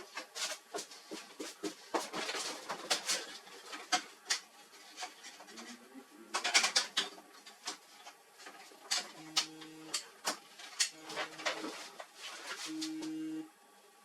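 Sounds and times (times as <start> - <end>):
clicks and knocks on printer parts: 6.3 - 11.8.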